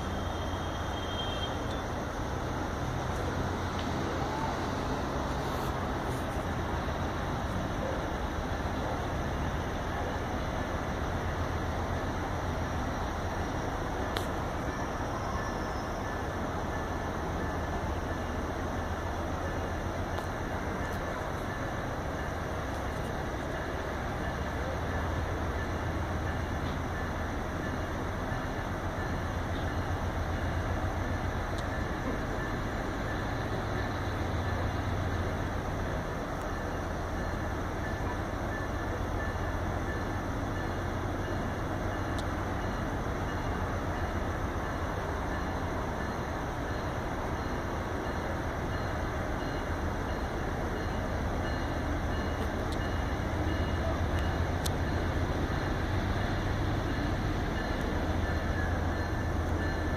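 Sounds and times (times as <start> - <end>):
train wheels rumbling on track: 0.0 - 59.9
faint click: 14.1 - 14.4.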